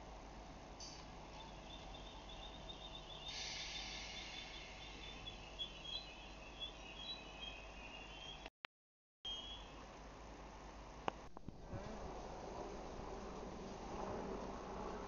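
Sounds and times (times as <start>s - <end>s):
faint low hum: 0.0s - 8.5s, 9.3s - 15.0s
small bird chirping: 1.3s - 8.5s, 9.3s - 9.8s
hiss: 3.2s - 6.1s.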